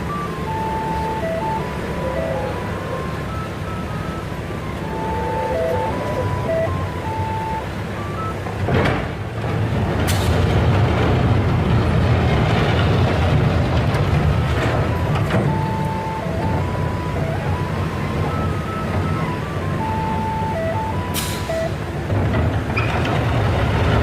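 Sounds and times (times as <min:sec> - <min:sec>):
electronic warning tune: 0:00.0 - 0:08.4, 0:14.8 - 0:21.8
diesel engine rumbling: 0:00.0 - 0:24.0.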